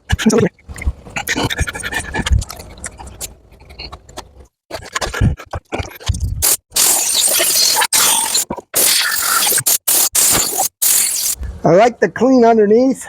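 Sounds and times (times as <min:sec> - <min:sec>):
air blowing hiss: 0:06.4 - 0:11.4.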